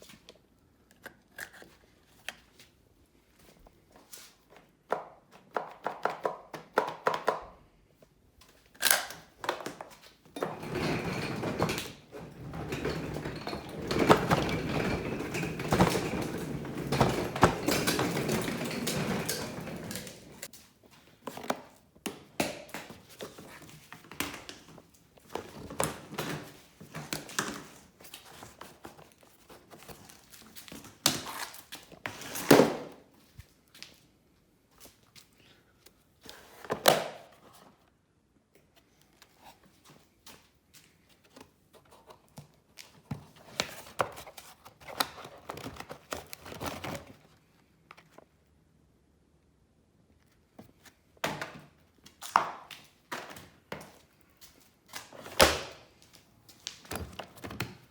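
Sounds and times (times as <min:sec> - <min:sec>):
rattling and scraping: 0:10.4 - 0:20.5.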